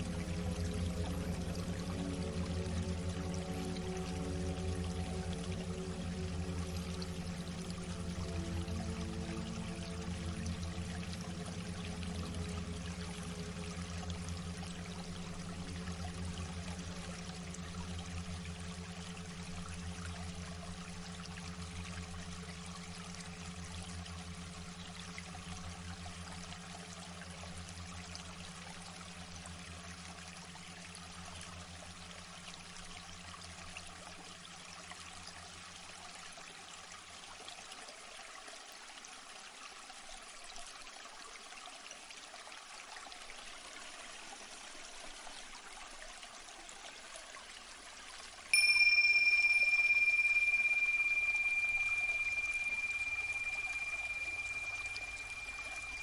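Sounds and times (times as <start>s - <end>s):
low hum: 0.0s - 35.6s, 48.6s - 56.0s
water trickling: 0.0s - 56.0s.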